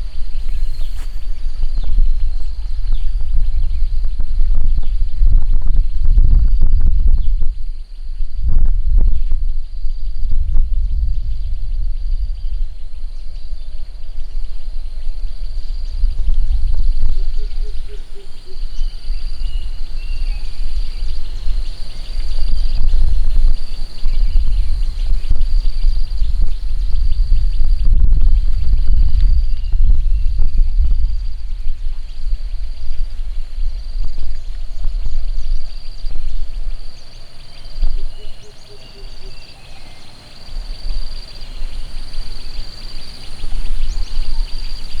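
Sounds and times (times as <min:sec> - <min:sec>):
short low pips: 0:00.0 - 0:03.2
bird chirps: 0:00.0 - 0:04.0, 0:15.0 - 0:30.4, 0:32.0 - 0:45.0
insects trilling high-pitched: 0:00.0 - 0:04.5, 0:10.8 - 0:45.0
heavy low rumble: 0:00.0 - 0:39.8
short chirps: 0:00.2 - 0:01.8.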